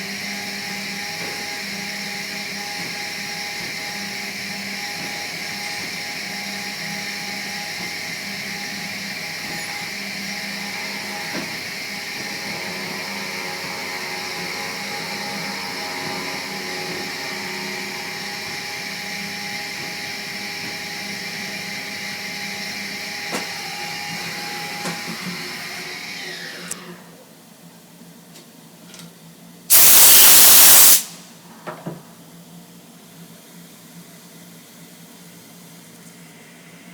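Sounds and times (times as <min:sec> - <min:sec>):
motor running with high whine: 0:05.2 - 0:26.8.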